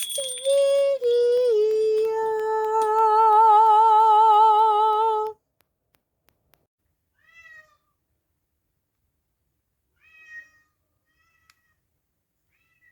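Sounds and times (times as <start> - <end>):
cat meowing: 7.2 - 7.9, 10.0 - 11.8.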